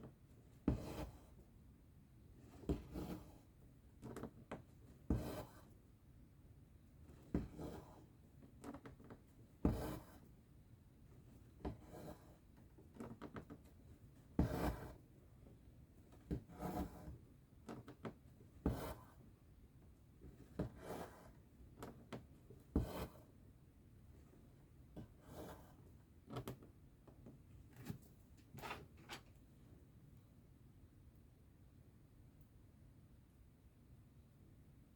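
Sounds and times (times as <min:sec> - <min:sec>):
needle and thread rasping through fabric: 0:00.6 - 0:01.4, 0:02.5 - 0:03.4, 0:05.0 - 0:05.8, 0:07.2 - 0:10.3, 0:11.4 - 0:13.7, 0:14.3 - 0:15.0, 0:16.1 - 0:19.2, 0:20.3 - 0:23.3.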